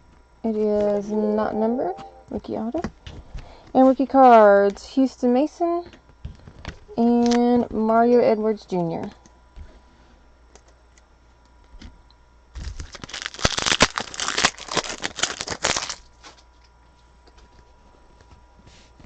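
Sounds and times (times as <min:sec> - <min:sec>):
foil wrapper tearing and crinkling: 0:12.6 - 0:16.4.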